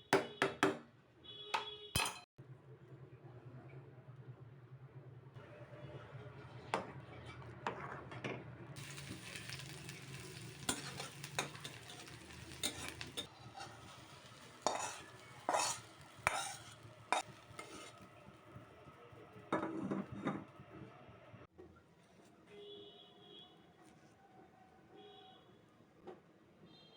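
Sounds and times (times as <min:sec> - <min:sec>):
food sizzling in a pan: 0:08.8 - 0:19.8
utensil scraping and clinking pan: 0:08.9 - 0:18.1.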